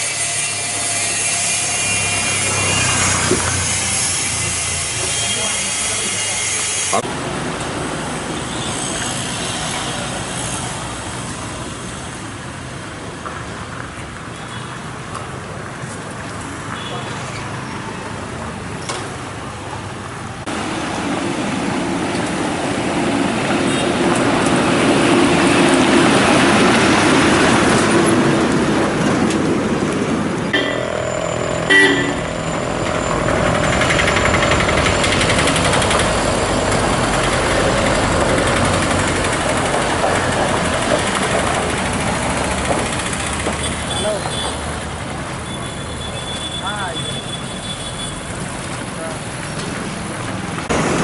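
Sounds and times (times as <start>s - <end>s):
vehicles passing on road: 0.0s - 51.0s
short horn toot: 30.6s - 33.2s.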